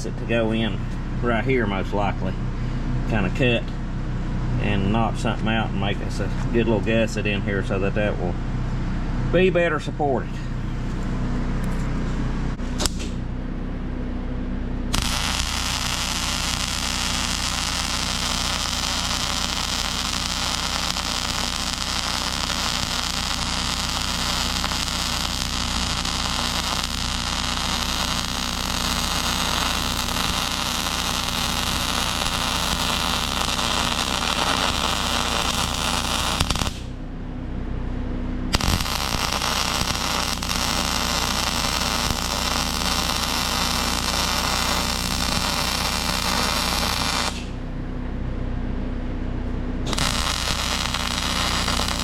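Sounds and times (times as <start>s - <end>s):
steady low hum: 0.0s - 52.0s
welding arc crackling: 14.9s - 37.0s, 38.5s - 47.6s, 49.9s - 52.0s.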